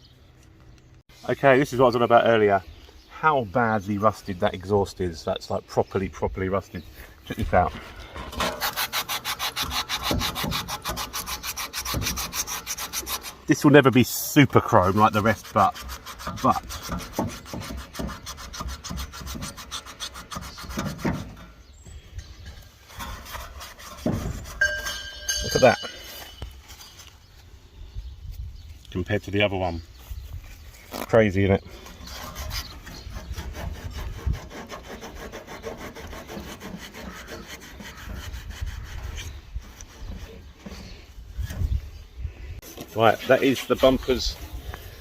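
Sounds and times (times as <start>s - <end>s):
tin foil scrubbing metal pipe: 8.1s - 21.5s, 22.3s - 26.9s, 31.7s - 41.0s.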